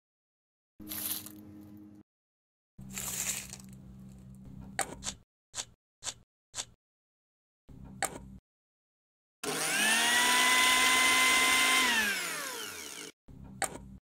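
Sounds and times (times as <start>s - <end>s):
blender motor whining: 9.4s - 13.2s.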